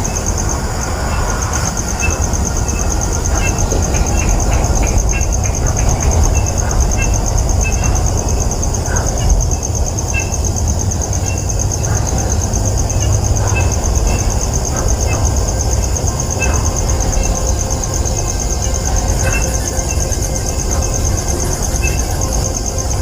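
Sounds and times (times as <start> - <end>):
pulsing insect trill: 0.0 - 23.0.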